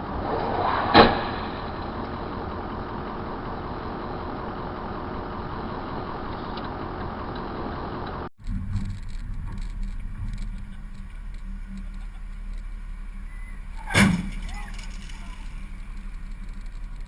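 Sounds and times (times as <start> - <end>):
collision bang: 0.0 - 2.5
car engine and road noise: 0.0 - 17.0.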